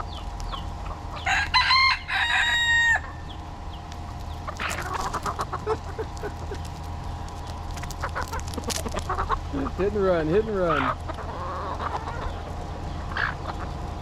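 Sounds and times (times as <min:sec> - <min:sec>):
chicks peeping: 0:00.0 - 0:14.0
hens clucking: 0:00.0 - 0:14.0
rooster crowing: 0:01.2 - 0:03.2.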